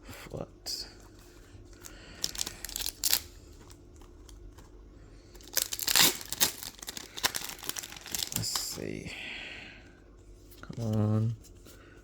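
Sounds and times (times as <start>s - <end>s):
foil wrapper crinkling and tearing: 1.8s - 4.4s, 5.4s - 8.9s.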